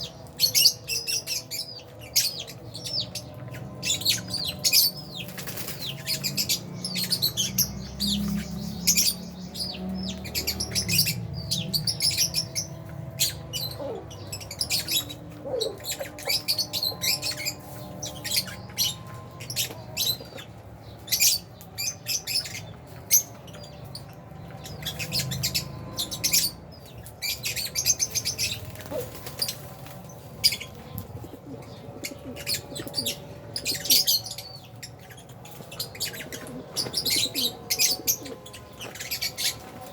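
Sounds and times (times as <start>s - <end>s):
birds chirping: 0.0s - 39.9s
wings flapping: 5.2s - 6.2s, 28.4s - 30.5s.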